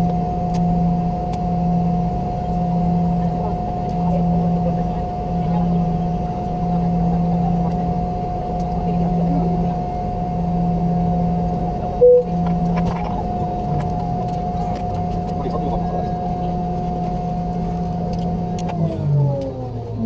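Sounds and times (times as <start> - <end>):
airplane cabin engine hum: 0.0 - 20.0
short loud beep: 12.0 - 12.3.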